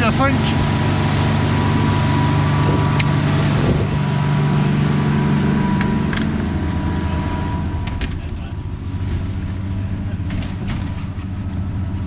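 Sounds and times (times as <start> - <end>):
boat engine droning: 0.0 - 12.0
wind noise: 1.5 - 4.6.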